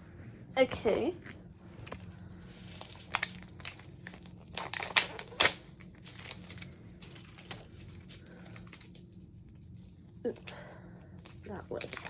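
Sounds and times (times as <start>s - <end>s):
paper wrapping crinkling and tearing: 1.8s - 9.0s.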